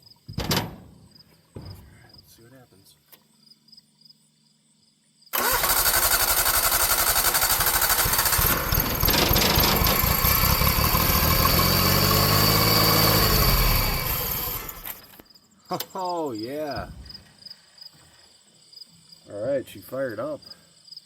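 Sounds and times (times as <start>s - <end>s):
engine cranking by starter: 5.3s - 15.2s
engine firing and running briefly: 5.4s - 15.1s.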